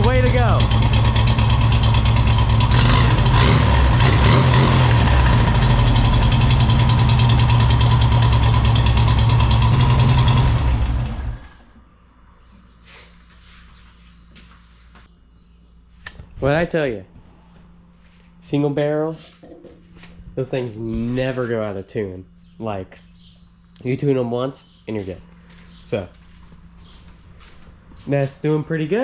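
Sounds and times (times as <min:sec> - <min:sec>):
air-cooled engine running: 0:00.0 - 0:11.8.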